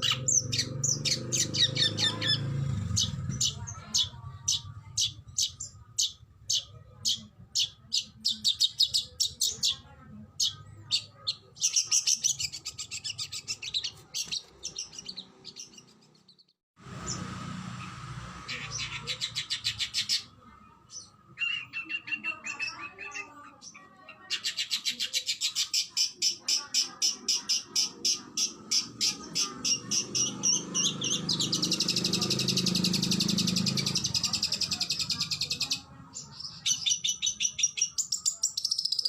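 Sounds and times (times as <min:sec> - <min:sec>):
bird singing rapid high notes: 0:00.0 - 0:39.0.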